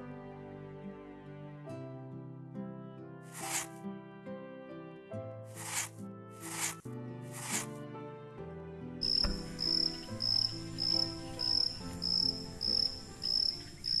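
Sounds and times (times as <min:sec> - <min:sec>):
soft instrumental music: 0:00.0 - 0:14.0
cricket chirping: 0:09.0 - 0:14.0.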